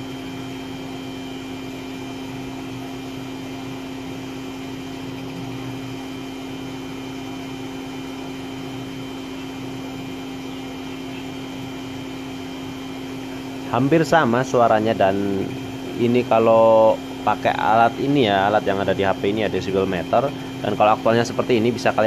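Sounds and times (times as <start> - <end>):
table saw motor humming: 0.0 - 22.0.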